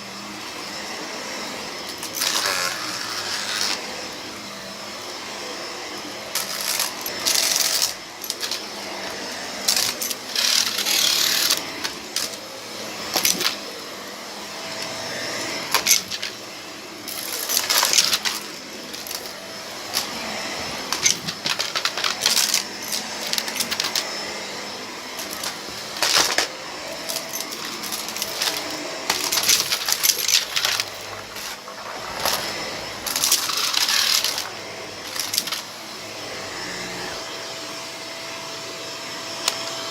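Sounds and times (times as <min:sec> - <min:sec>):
vacuum cleaner running: 0:00.0 - 0:39.9
debris rattling in vacuum: 0:25.1 - 0:35.7.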